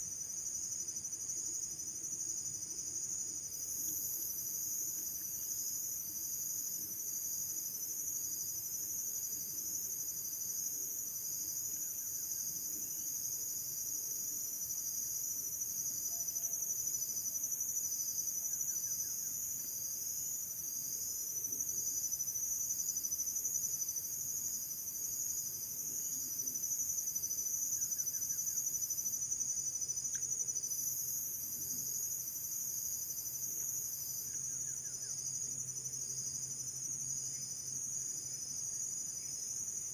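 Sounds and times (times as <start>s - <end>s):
insect chorus trilling: 14.7s - 39.9s.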